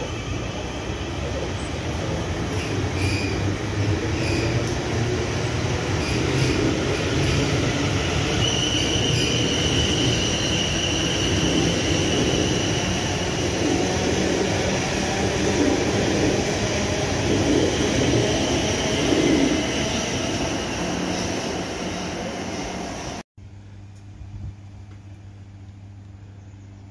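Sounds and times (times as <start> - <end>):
train rumbling: 0.0 - 23.2
high steady squeal: 5.9 - 23.2.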